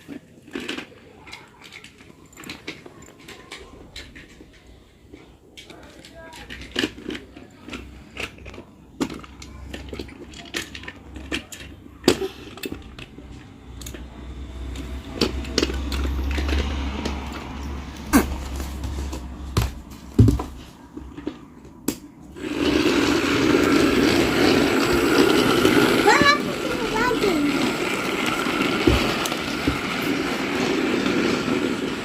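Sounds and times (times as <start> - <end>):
plastic toys clicking and knocking: 0.0 - 18.4, 21.0 - 32.0.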